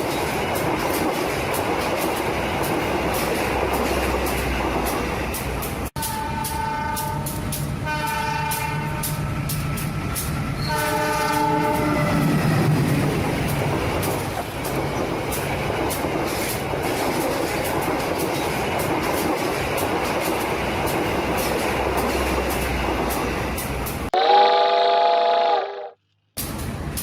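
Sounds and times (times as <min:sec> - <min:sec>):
wheels clickety-clack: 0:00.0 - 0:24.1
train running: 0:00.0 - 0:25.2, 0:26.4 - 0:27.0
train horn blasts: 0:06.0 - 0:09.4, 0:10.6 - 0:12.3, 0:24.1 - 0:26.0.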